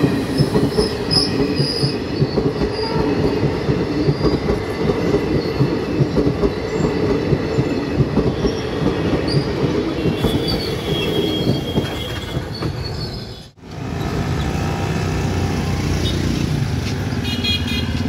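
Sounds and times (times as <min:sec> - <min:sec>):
train coaches rolling past: 0:00.0 - 0:18.0
wheel squeal: 0:10.2 - 0:13.5
motorbikes riding: 0:13.6 - 0:18.0.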